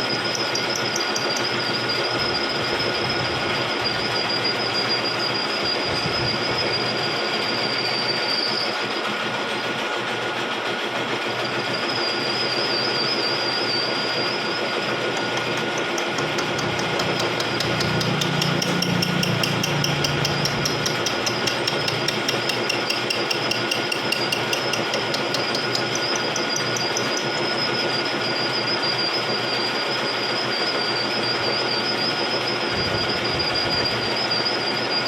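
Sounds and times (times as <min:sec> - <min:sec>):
cutter ticking: 0:00.0 - 0:03.0, 0:14.6 - 0:27.8
milling machine whine: 0:00.0 - 0:35.0.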